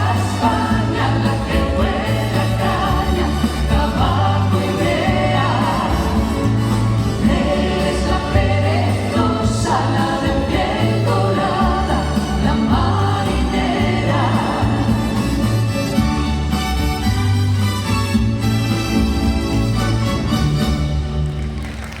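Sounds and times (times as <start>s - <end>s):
vocal group singing in harmony: 0.0s - 16.5s
band accompaniment with bass line: 0.0s - 22.0s.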